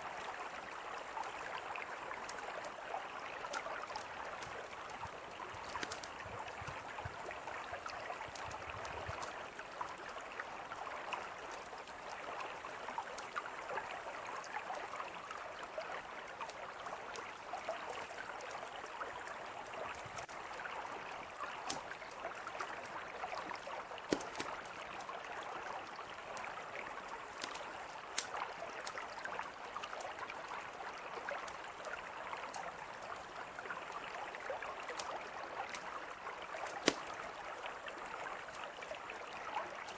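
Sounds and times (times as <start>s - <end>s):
campfire crackling and popping: 3.5s - 9.4s, 24.0s - 25.0s, 26.3s - 29.1s, 36.6s - 37.2s.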